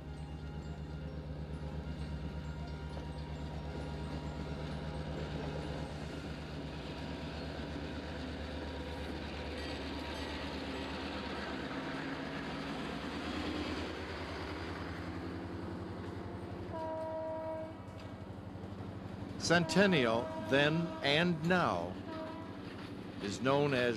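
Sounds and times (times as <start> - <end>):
locomotive engine throbbing: 0.0 - 23.9
train horn blast: 16.7 - 18.1, 19.4 - 22.8.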